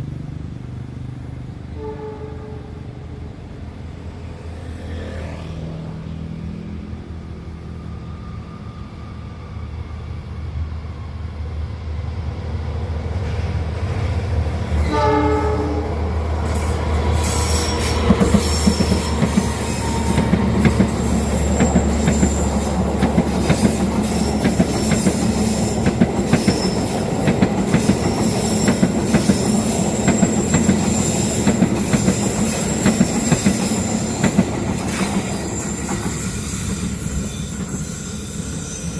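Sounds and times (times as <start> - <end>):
train horn blast: 1.7 - 3.5, 14.8 - 16.2
train wheels squealing: 6.9 - 11.8, 16.4 - 38.9
locomotive engine rumbling: 12.1 - 38.9
train wheels clacking: 14.8 - 38.9.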